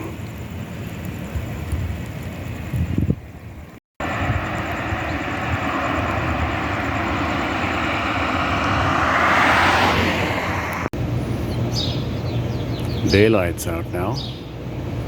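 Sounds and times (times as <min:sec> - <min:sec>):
vehicle passing: 0:04.0 - 0:11.2.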